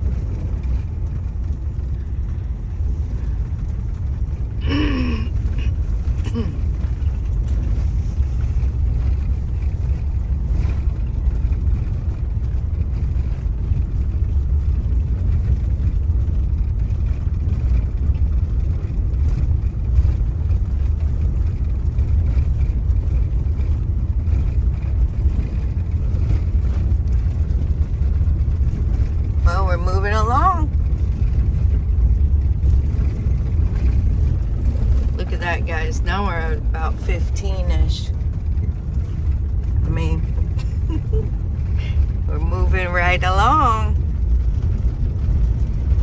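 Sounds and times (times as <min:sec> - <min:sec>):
car engine and road noise: 0:00.0 - 0:46.0.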